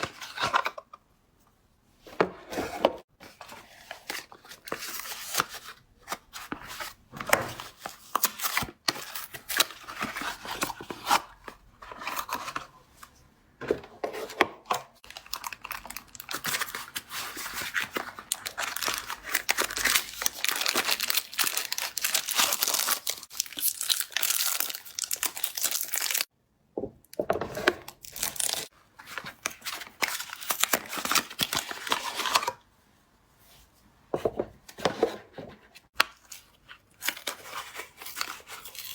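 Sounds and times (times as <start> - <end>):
wrappers ripping and crinkling: 18.2 - 26.3, 28.0 - 28.7.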